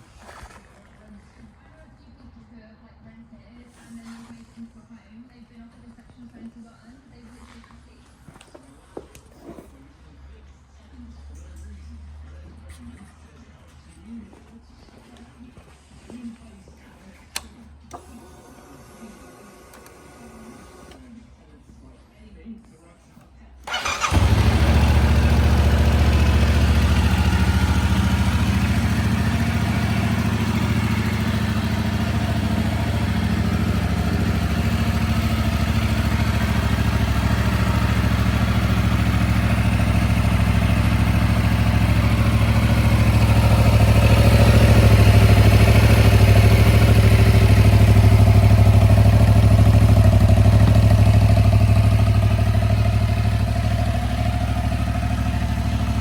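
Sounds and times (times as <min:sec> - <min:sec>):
motorcycle engine idling: 0:23.6 - 0:56.0.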